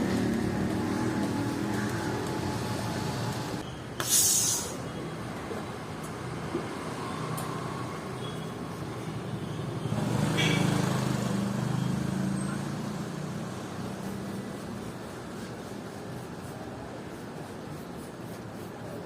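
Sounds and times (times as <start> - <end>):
traffic noise: 0.0 - 19.0
vehicle engine passing by: 9.9 - 14.6.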